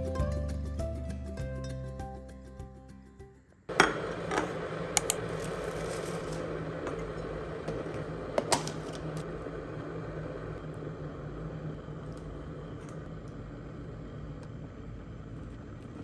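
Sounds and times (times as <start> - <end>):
music: 0.0 - 3.7
objects clicking and clinking: 3.7 - 7.1
room hum: 3.7 - 16.0.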